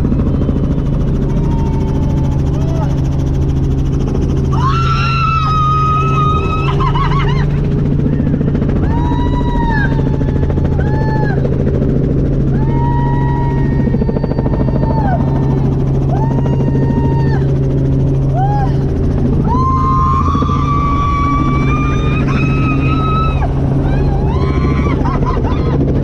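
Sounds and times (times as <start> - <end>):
helicopter engine and rotor: 0.0 - 26.0.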